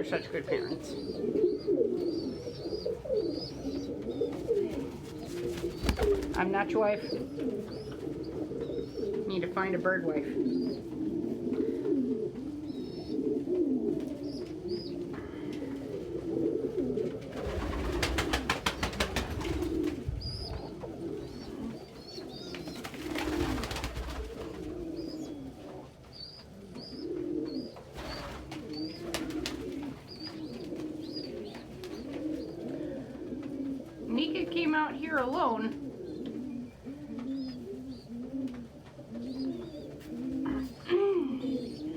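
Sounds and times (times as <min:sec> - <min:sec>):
pigeons cooing: 0:00.0 - 0:41.9
rapid wing flaps: 0:04.8 - 0:06.5, 0:17.4 - 0:20.0.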